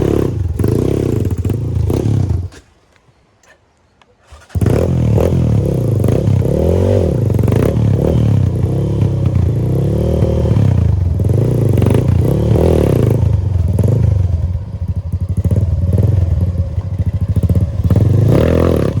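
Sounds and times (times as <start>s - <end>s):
motorcycle engine revving: 0.0s - 2.6s, 4.2s - 19.0s.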